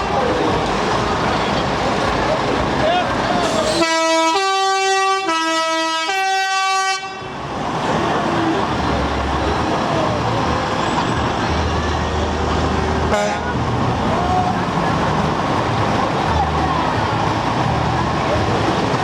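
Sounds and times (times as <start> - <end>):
low engine rumble: 0.0 - 5.8, 7.0 - 19.0
truck horn two alternating notes: 3.7 - 7.4, 13.1 - 13.6.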